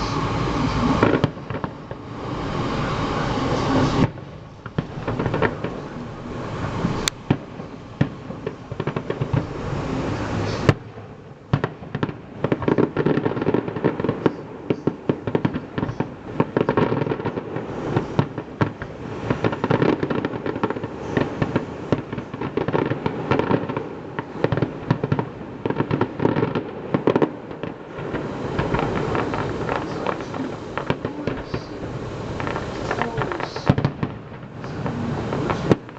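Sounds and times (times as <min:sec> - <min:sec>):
fireworks bangs and crackling: 0:00.0 - 0:35.9
fireworks rumble: 0:00.0 - 0:35.9.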